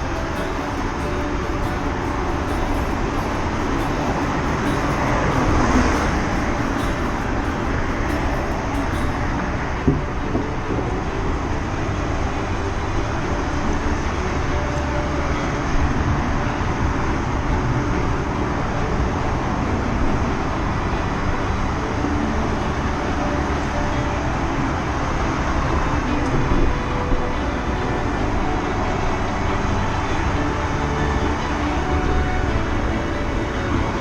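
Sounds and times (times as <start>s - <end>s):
passing traffic: 0.0s - 34.0s
road noise: 0.0s - 34.0s
wind noise: 0.0s - 34.0s.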